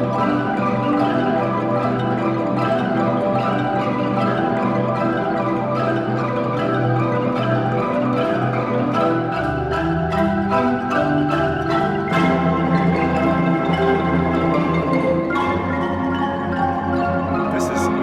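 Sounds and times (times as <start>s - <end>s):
deep bass marimba notes: 0.0s - 18.0s
marimba ensemble playing: 0.0s - 18.0s.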